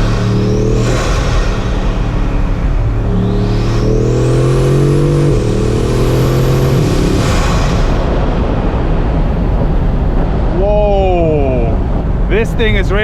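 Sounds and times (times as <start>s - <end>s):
high turbo whistle: 0.0s - 8.2s
car engine accelerating: 0.0s - 10.6s
wind and road noise: 0.0s - 13.0s.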